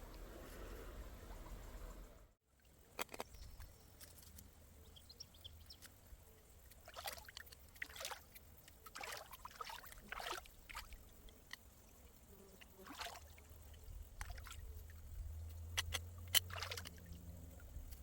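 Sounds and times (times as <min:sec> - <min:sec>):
water splashing and sloshing: 0:05.7 - 0:18.0
sharp clicks: 0:15.5 - 0:17.0.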